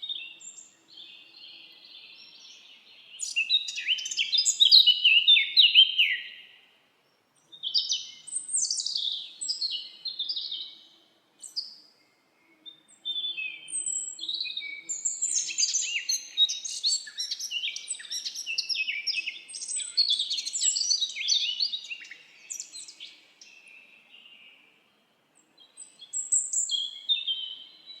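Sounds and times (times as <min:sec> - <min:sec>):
songbirds chirping and trilling: 0:00.0 - 0:28.0.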